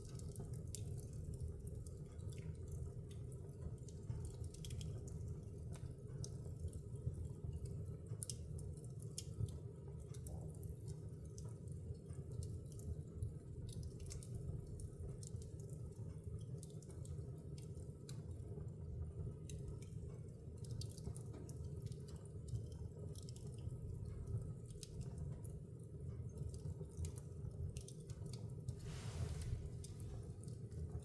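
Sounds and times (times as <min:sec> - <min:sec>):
wood fire crackling: 0:00.0 - 0:31.0
hiss: 0:28.8 - 0:29.9.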